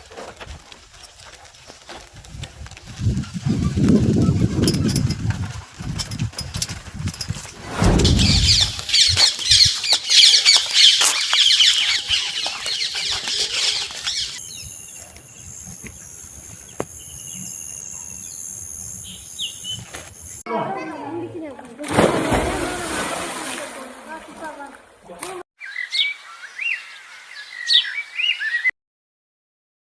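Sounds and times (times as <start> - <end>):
low rumble: 7.5 - 9.0
birds chirping rapidly: 7.7 - 20.4, 25.6 - 28.7.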